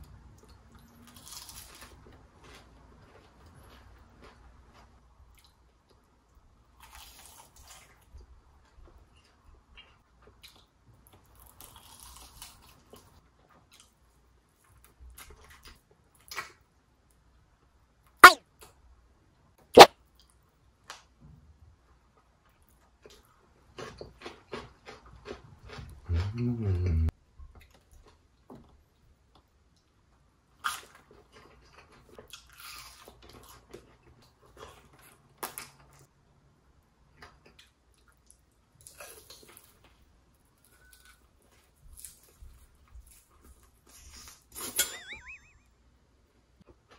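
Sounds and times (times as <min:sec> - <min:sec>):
chewing with small crackles: 0:00.0 - 0:17.2, 0:21.8 - 0:44.7
crunchy bite of fried chicken: 0:00.4 - 0:02.7, 0:06.7 - 0:08.1, 0:09.8 - 0:13.1, 0:30.6 - 0:36.1, 0:37.2 - 0:40.0
person chewing crunchy food: 0:01.1 - 0:05.6, 0:06.8 - 0:08.0, 0:11.4 - 0:13.1, 0:23.7 - 0:27.1, 0:30.6 - 0:35.7, 0:38.8 - 0:39.9.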